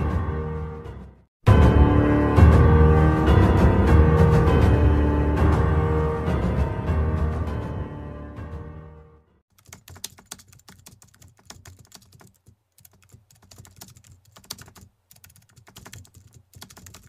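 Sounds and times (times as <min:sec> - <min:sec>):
music: 0:00.0 - 0:09.4
keyboard typing: 0:09.5 - 0:17.0.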